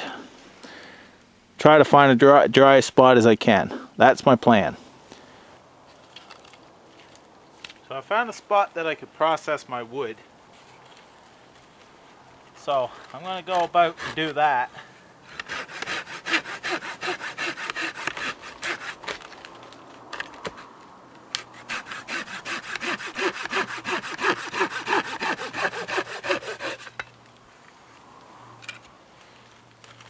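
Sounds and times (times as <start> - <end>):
hand saw cutting wood: 13.2 - 14.6, 15.3 - 19.3, 21.4 - 27.0.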